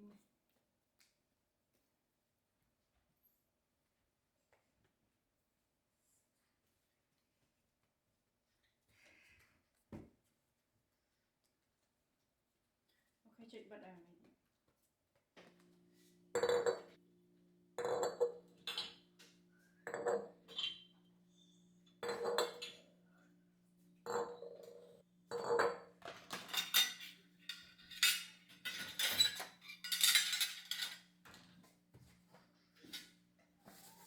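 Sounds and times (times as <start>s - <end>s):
dishes and cutlery clinking: 17.8s - 19.0s, 19.9s - 20.9s, 22.0s - 22.8s, 24.1s - 31.6s, 32.7s - 33.2s.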